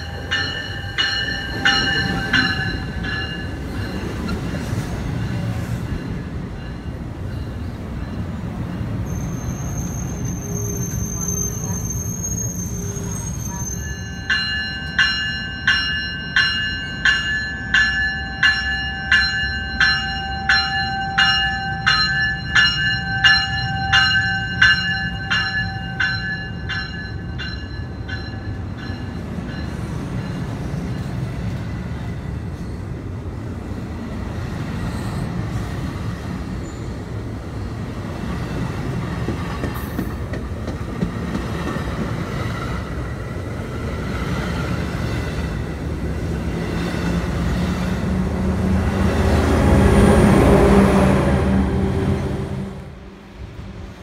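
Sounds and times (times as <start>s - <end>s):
bell ringing: 0.0s - 4.2s, 13.7s - 30.4s
train cars rumbling past: 0.0s - 54.0s.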